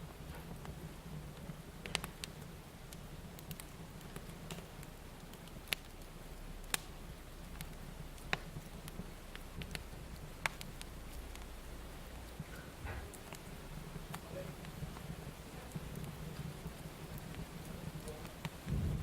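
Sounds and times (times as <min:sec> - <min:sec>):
fire crackling and popping: 0:00.0 - 0:19.0
low rumble: 0:18.6 - 0:19.0.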